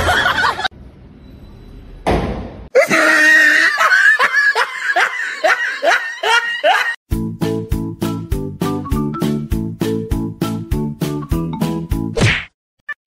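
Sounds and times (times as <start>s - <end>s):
person giggling: 2.8s - 7.0s.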